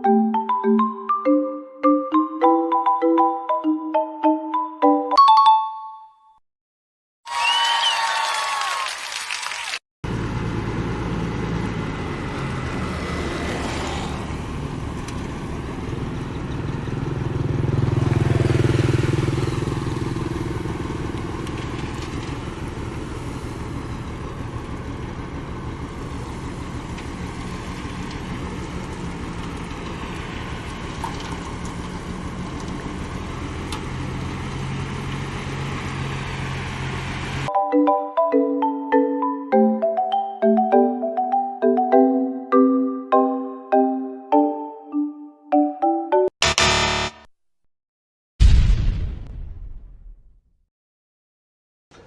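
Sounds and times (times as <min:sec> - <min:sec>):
construction machine engine running: 0:10.0 - 0:37.5.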